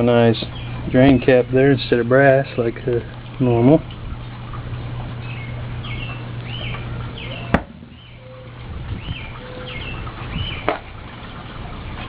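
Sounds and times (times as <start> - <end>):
steady low hum: 0.0 - 12.0
small birds chirping: 0.4 - 1.7, 5.2 - 10.7.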